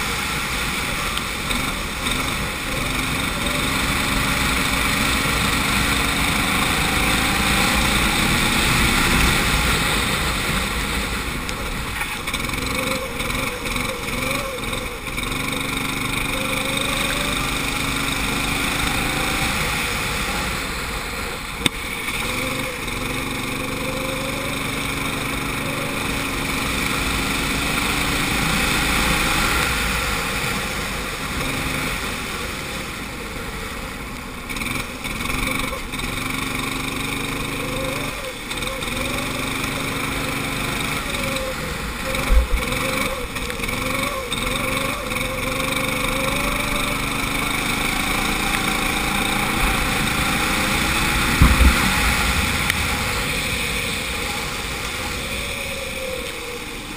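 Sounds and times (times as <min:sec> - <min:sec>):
kart engine revving: 0:00.0 - 0:56.9.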